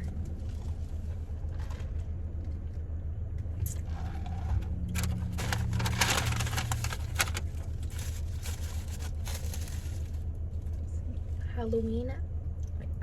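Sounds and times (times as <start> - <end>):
car cabin engine hum: 0.0 - 13.0
rustling and crackling handling: 4.9 - 10.3.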